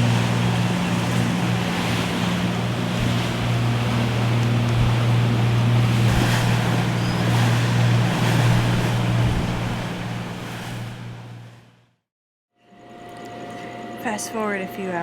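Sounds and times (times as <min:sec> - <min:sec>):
wind buffeting microphone: 0:00.0 - 0:11.5
rushing water: 0:00.0 - 0:11.6
motorboat engine humming: 0:00.0 - 0:12.0, 0:12.6 - 0:15.0.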